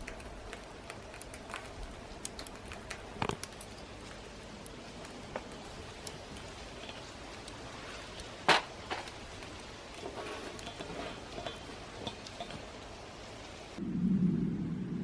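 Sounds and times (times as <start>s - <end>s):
firewood crackling and popping: 0.0s - 13.8s.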